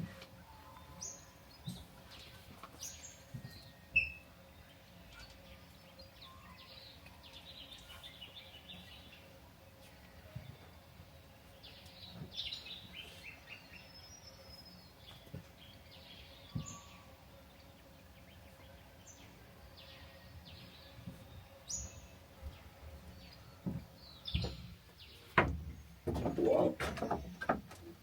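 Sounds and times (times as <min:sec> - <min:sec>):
faint outdoor background: 0:00.0 - 0:28.0
birds chirping: 0:00.2 - 0:28.0.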